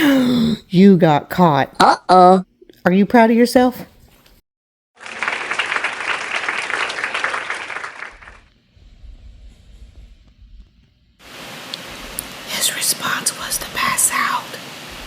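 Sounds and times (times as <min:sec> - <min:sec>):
applause: 0:05.0 - 0:08.5
faint low rumble: 0:08.3 - 0:11.2.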